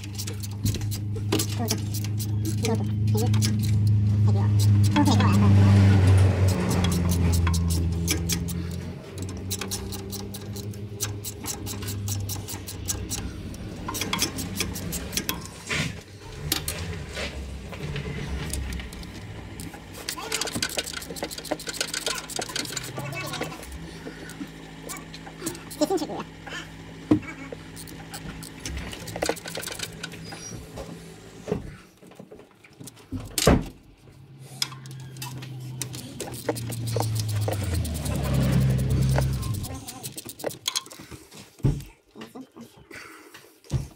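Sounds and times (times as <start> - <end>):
hand tools clinking on metal: 0.0 - 15.6, 20.0 - 23.7, 34.6 - 41.1
ratchet wrench clicking: 0.0 - 15.6, 18.5 - 26.1, 27.7 - 30.2, 34.5 - 41.0
low engine hum: 0.0 - 31.8, 33.9 - 40.1.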